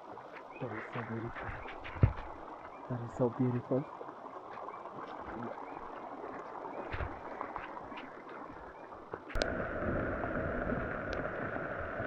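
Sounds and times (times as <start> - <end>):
water dripping ticks: 0.0 - 9.5, 11.0 - 11.4
steady rain: 0.0 - 12.0.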